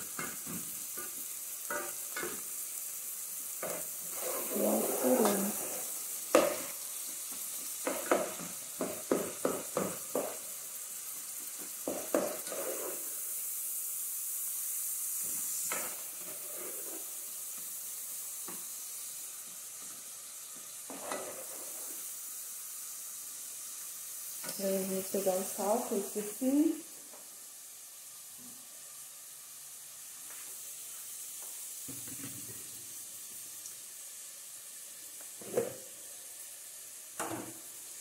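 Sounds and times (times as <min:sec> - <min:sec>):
onion and fish sizzling in oil: 0:00.0 - 0:38.0
plastic spatula scraping a pot: 0:04.0 - 0:05.9.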